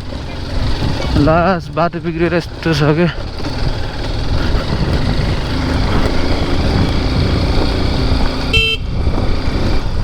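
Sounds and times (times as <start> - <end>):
dirt bike engine rumbling: 0.0 - 10.0
vehicle horn toot: 8.4 - 9.0.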